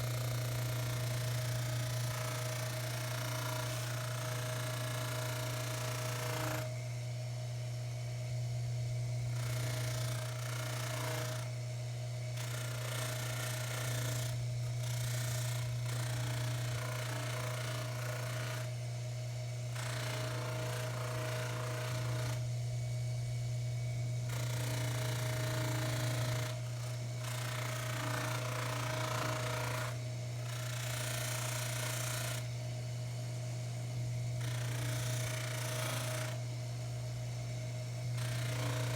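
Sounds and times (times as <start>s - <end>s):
lathe humming: 38.2s - 38.9s.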